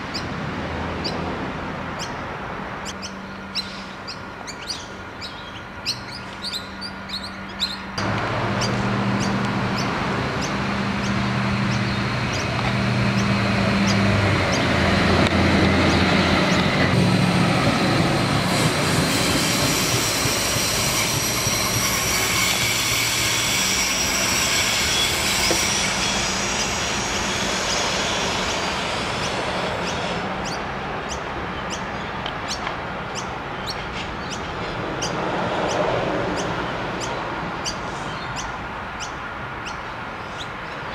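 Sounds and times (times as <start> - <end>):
railcar engine drone: 0.0 - 40.9
birds chirping: 1.0 - 1.3, 1.9 - 16.9, 29.1 - 40.9
wheel squeal: 18.5 - 30.6.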